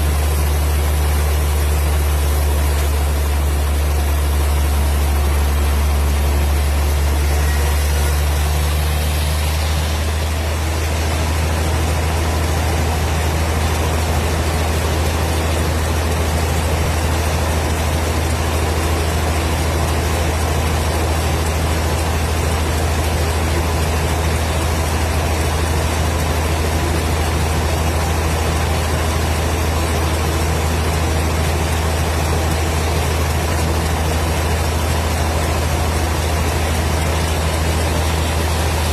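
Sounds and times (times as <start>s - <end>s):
wood-cutting machine humming: 0.0s - 38.9s.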